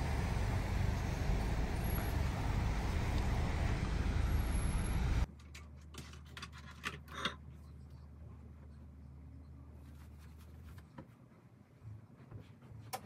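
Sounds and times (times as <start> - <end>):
car engine idling: 0.0 - 5.3.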